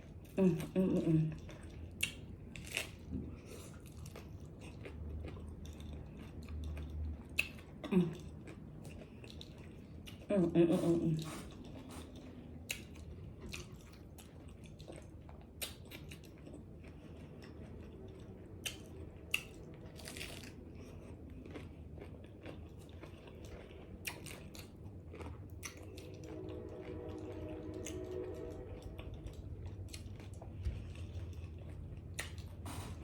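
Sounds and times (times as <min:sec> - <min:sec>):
person chewing: 0:01.1 - 0:33.0
crunching taco shells: 0:12.0 - 0:27.1.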